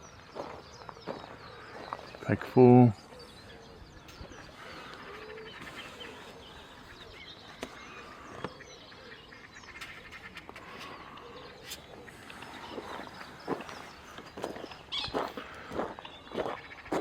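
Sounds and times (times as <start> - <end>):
birds calling: 0.0 - 17.0
footsteps on a bank: 0.3 - 2.6, 12.3 - 17.0.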